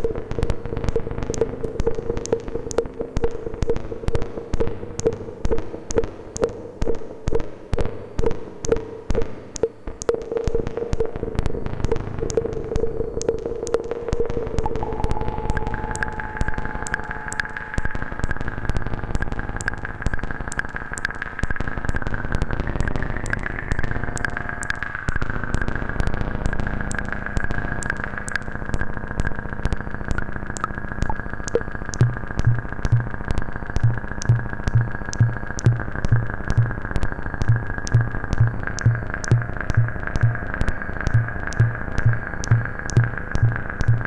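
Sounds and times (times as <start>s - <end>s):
synthesizer crackling clicks: 0.0s - 44.0s
pulsing low bass tone: 10.1s - 44.0s
high synth drone: 14.2s - 44.0s.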